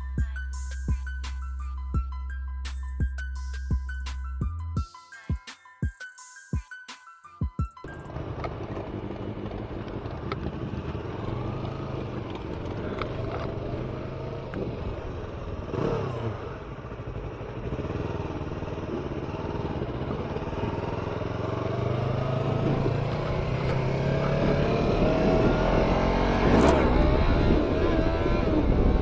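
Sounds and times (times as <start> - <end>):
motorcycle engine running: 8.1 - 29.0.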